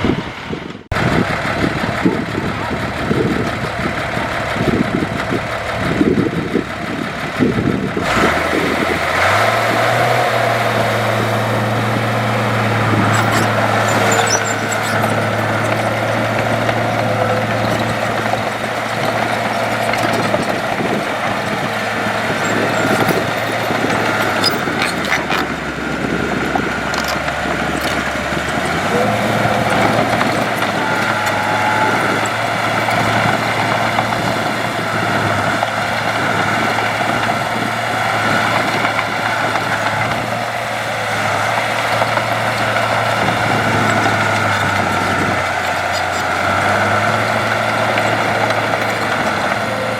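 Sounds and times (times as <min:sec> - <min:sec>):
heavy diesel machinery running: 0:00.0 - 0:49.9.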